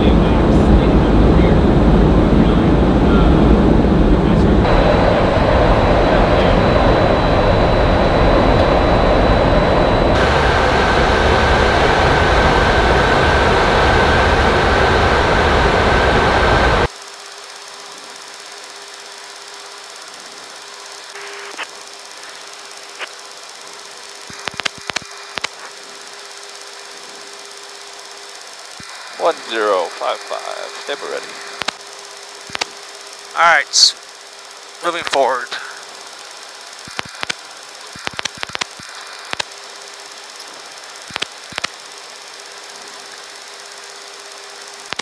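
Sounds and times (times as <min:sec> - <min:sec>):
aircraft cabin noise: 0:00.0 - 0:16.9
faint held tone: 0:04.6 - 0:13.4
sharp clicks: 0:24.3 - 0:25.6, 0:31.6 - 0:31.8, 0:32.5 - 0:32.8, 0:36.7 - 0:39.6, 0:41.0 - 0:41.8.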